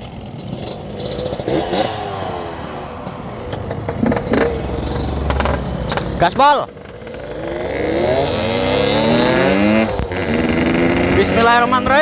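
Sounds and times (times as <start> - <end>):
motorcycle accelerating: 0.0 - 12.0.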